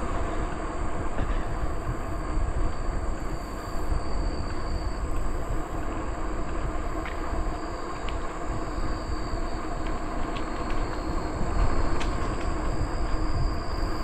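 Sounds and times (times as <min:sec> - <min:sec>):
bicycle tyres rolling on trail: 0:00.0 - 0:14.0
insects droning: 0:00.0 - 0:14.0
wind on microphone: 0:00.0 - 0:14.0.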